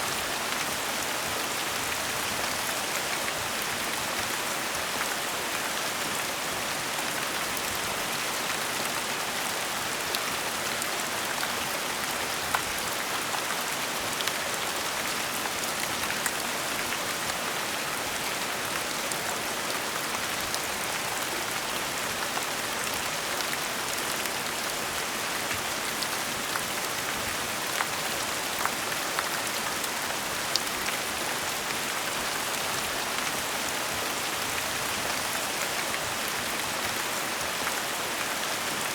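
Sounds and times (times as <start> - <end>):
gentle rain falling: 0.0 - 38.9.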